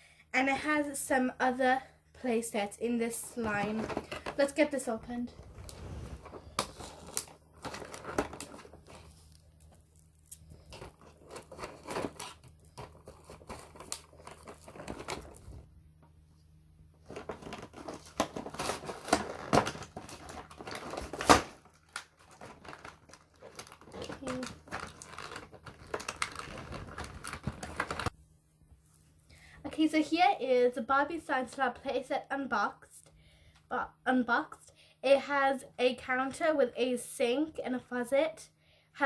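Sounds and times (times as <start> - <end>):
packaging rustling and tearing: 5.3 - 15.7, 17.0 - 28.2.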